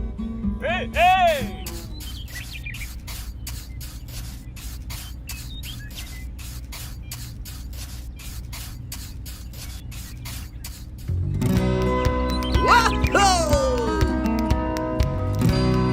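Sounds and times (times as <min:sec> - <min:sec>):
rapid pulsing hiss: 0:01.2 - 0:11.3
small machine humming: 0:01.6 - 0:11.2.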